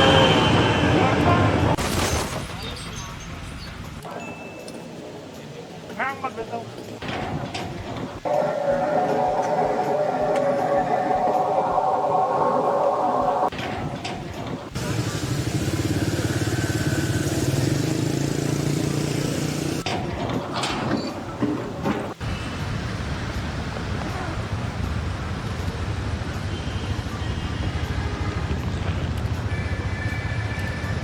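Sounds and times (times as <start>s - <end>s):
engine and machinery noise: 7.0s - 31.0s.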